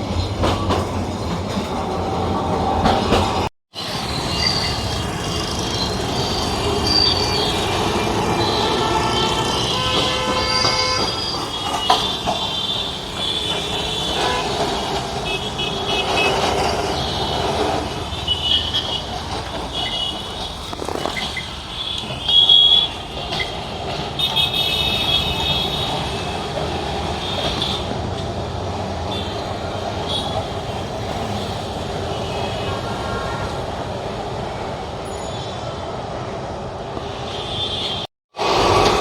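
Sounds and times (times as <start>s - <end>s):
tram rumbling: 0.0s - 39.0s
short high-pitched squeals: 3.8s - 7.8s.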